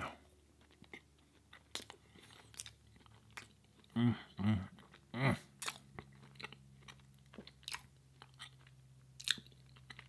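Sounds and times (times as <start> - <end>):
chewing soft cake: 0.0 - 10.0
faint low hum: 0.0 - 10.0
wet mouth clicks and smacks: 5.6 - 5.9.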